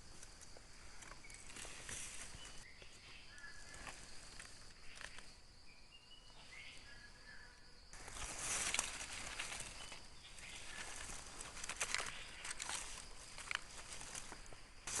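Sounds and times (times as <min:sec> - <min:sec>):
high insect drone: 0:00.0 - 0:15.0
leaf litter crackles: 0:08.0 - 0:15.0.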